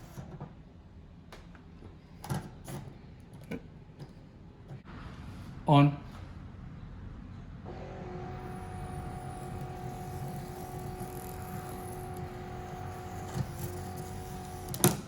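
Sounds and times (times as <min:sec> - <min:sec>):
antenna motor whining: 0:07.7 - 0:15.0.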